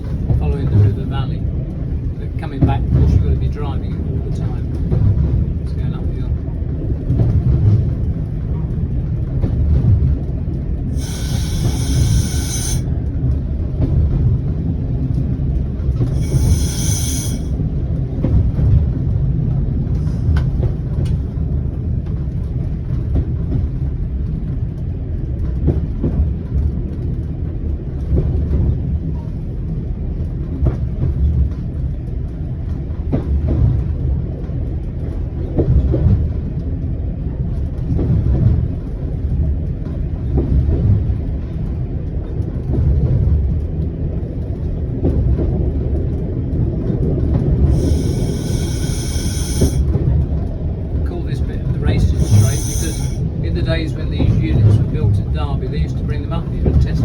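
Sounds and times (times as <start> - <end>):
railcar engine and wheel rumble: 0.0 - 57.0
short high-pitched tones: 11.0 - 12.8, 16.2 - 17.5, 47.7 - 49.8, 52.0 - 53.2.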